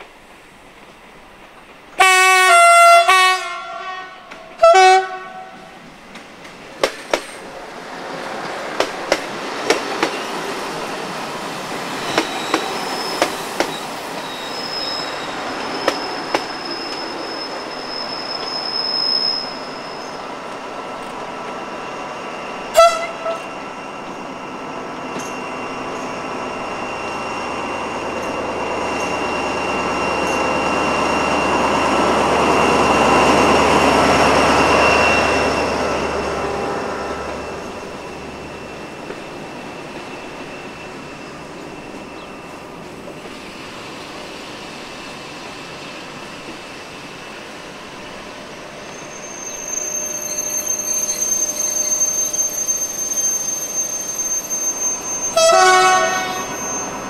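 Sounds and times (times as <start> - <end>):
diesel locomotive engine: 0.0 - 57.0
train horn blasts: 2.0 - 5.8, 22.7 - 23.6, 55.2 - 57.0
high wheel squeal: 9.7 - 57.0.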